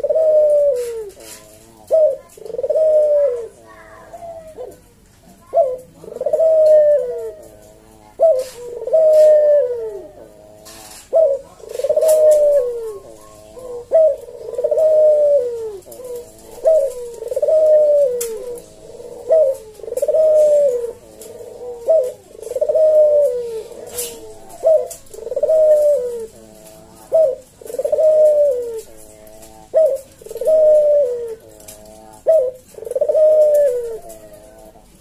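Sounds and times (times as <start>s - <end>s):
dove cooing: 0.0s - 35.0s.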